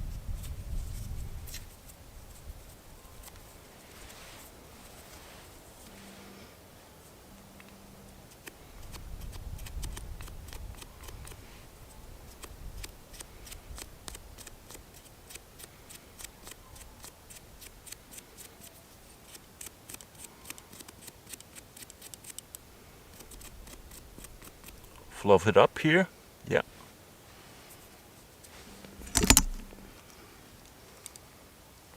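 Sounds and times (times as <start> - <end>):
sharp clicks and snips of tinder: 8.3 - 11.4, 12.3 - 18.5, 19.3 - 25.0, 28.9 - 29.8
low rumble of handling: 28.5 - 30.0.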